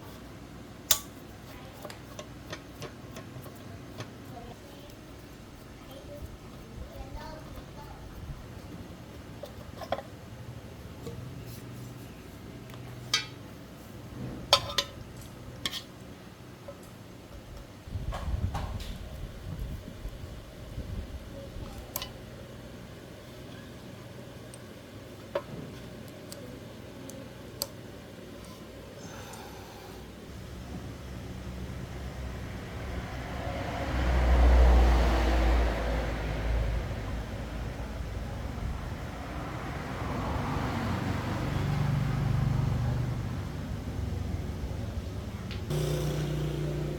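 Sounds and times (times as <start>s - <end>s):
low engine rumble: 30.1s - 46.9s.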